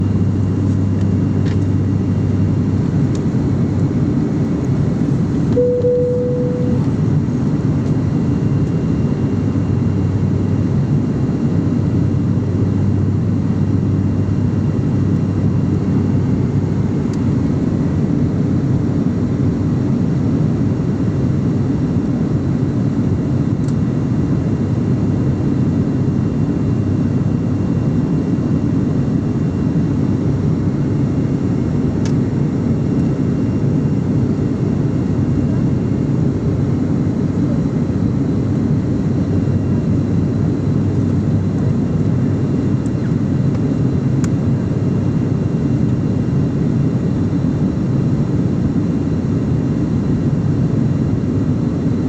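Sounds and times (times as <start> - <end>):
aeroplane cabin engine rushing: 0.0 - 52.0
short single tone: 5.5 - 7.1.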